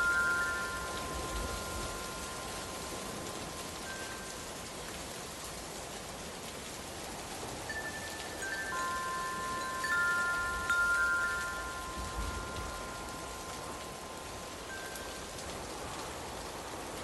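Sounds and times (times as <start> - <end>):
wind chime tones: 0.0 - 4.5, 7.7 - 15.8
rain hiss: 0.0 - 17.0.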